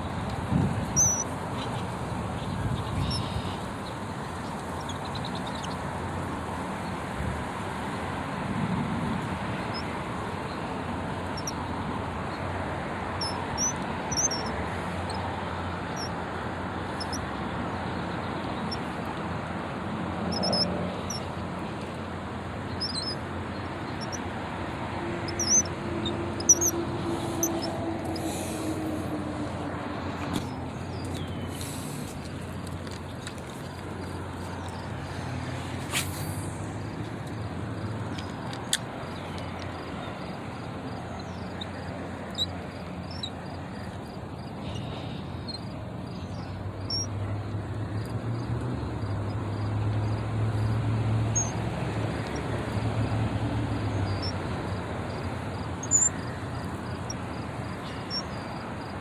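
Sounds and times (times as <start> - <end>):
outdoor background rumble: 0.0 - 59.0
small birds chirping: 1.0 - 4.0, 4.8 - 5.8, 13.2 - 15.3, 20.3 - 21.3, 22.7 - 24.2, 25.2 - 28.7, 30.3 - 35.3, 37.3 - 48.0, 50.0 - 51.6, 53.8 - 54.4, 55.0 - 58.9.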